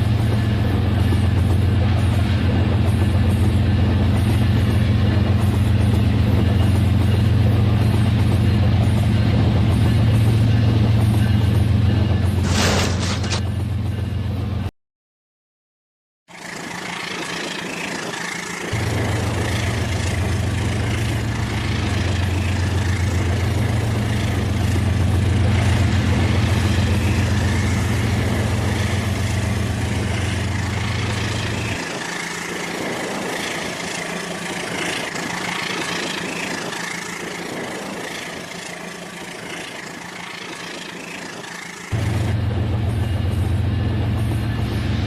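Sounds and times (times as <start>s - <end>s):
low engine-like drone: 0.0s - 14.7s, 16.3s - 45.0s
toy train motor hum: 25.4s - 41.9s.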